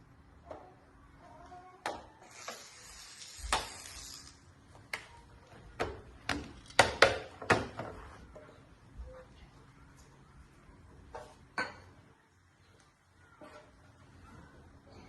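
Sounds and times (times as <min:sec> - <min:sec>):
hiss: 0:02.3 - 0:04.4.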